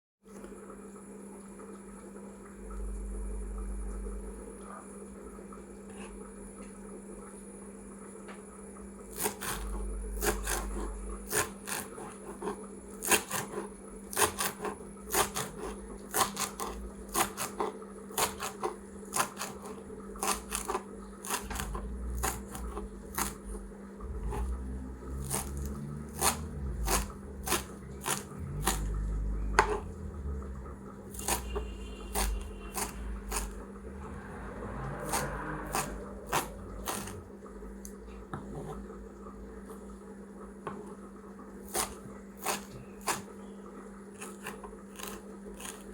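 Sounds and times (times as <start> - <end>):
knife chopping on cutting board: 9.1 - 23.6, 25.2 - 29.9, 31.1 - 33.6, 35.0 - 37.2, 41.6 - 43.3, 44.2 - 45.9.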